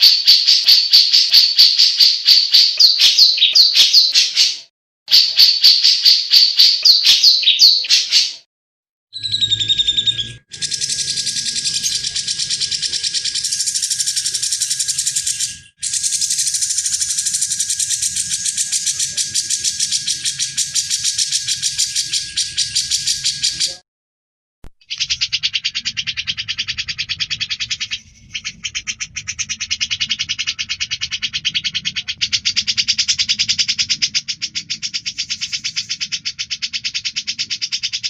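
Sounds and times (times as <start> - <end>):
bulbul singing: 0.0 - 8.4, 9.2 - 23.8, 24.8 - 38.0.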